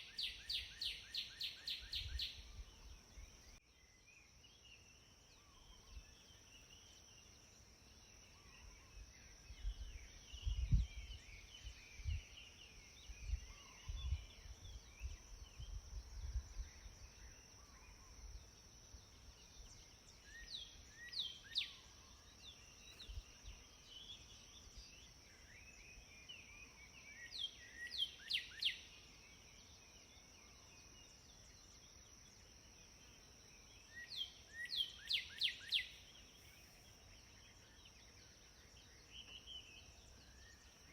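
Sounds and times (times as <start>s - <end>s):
wind rumble on microphone: 9.4s - 17.7s.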